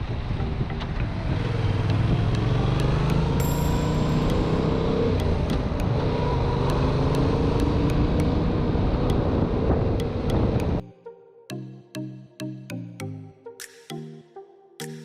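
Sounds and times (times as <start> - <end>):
wind rumble on microphone: 0.0 - 2.4, 8.0 - 10.8
motorcycle engine cruising: 0.0 - 10.8.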